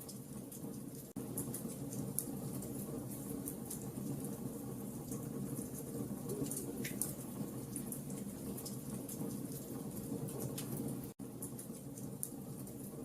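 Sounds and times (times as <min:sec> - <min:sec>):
bonfire crackling and popping: 0:00.0 - 0:04.4.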